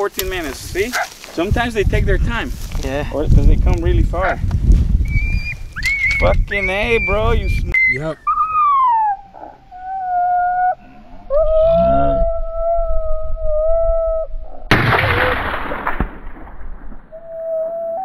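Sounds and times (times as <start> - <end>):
coyote howling: 5.1 - 15.2, 17.1 - 18.0
rifle shot with echo: 14.7 - 17.1.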